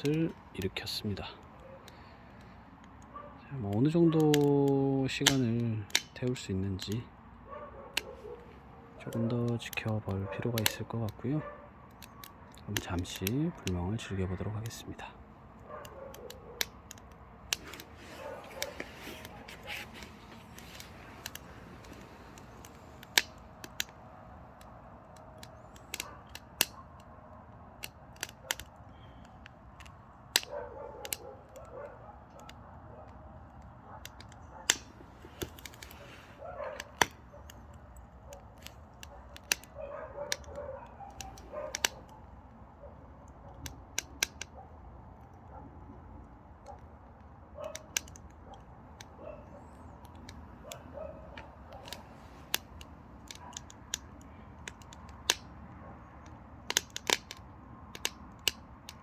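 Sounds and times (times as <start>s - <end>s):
wood fire crackling and popping: 0.0s - 7.2s, 7.9s - 11.2s, 11.8s - 42.6s, 43.2s - 59.0s
faint fire hiss: 12.6s - 26.7s, 34.1s - 40.5s.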